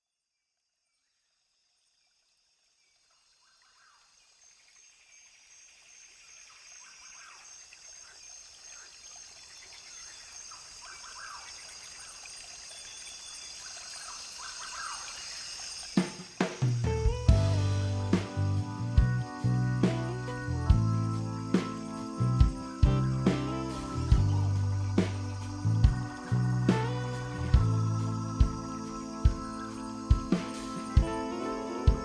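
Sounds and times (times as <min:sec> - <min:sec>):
high insect buzz: 0:00.8 - 0:32.0
running water: 0:02.0 - 0:32.0
bird calls: 0:03.4 - 0:04.2, 0:06.4 - 0:17.6.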